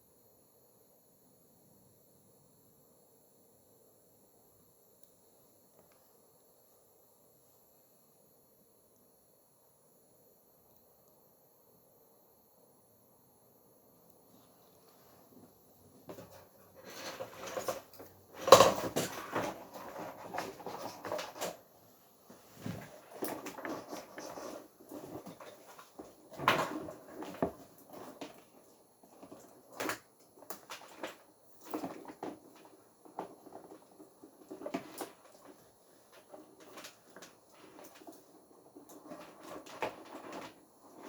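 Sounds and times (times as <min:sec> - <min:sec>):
objects knocking and clicking: 0:16.0 - 0:21.6, 0:22.6 - 0:41.0.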